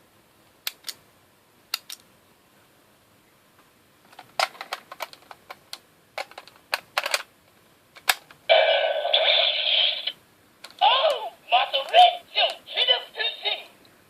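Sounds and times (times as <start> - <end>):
hard plastic clicking and snapping: 4.1 - 7.3, 8.0 - 8.4
toy speaker electronic sound: 8.5 - 10.2.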